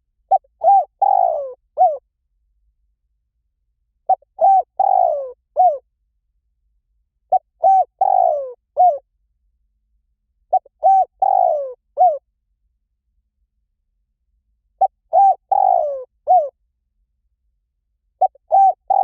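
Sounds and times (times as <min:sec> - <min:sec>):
dove cooing: 0:00.3 - 0:02.0, 0:04.1 - 0:05.8, 0:07.3 - 0:09.0, 0:10.5 - 0:12.2, 0:14.8 - 0:16.5, 0:18.2 - 0:19.0.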